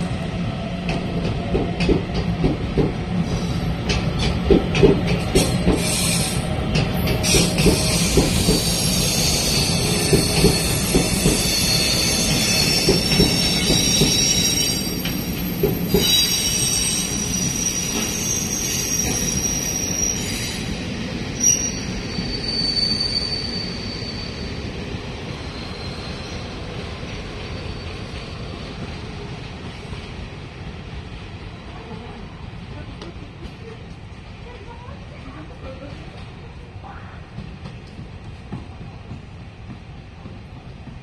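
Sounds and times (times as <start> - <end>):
train rumble: 0.0 - 22.5, 24.5 - 41.0
train wheels squealing: 5.4 - 29.0.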